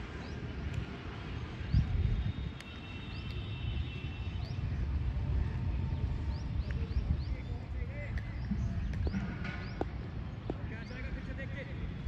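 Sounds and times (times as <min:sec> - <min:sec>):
small birds chirping: 0:05.8 - 0:11.6.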